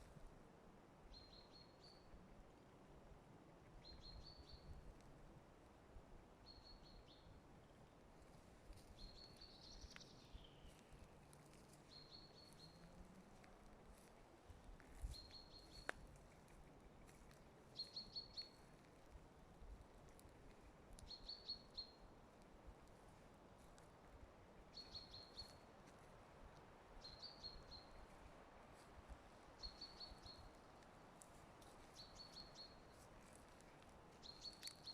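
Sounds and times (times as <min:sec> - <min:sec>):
small bird singing: 0:17.8 - 0:18.6, 0:21.1 - 0:22.0, 0:24.7 - 0:25.6, 0:27.0 - 0:28.0, 0:29.6 - 0:30.5, 0:31.9 - 0:33.0, 0:34.2 - 0:34.9.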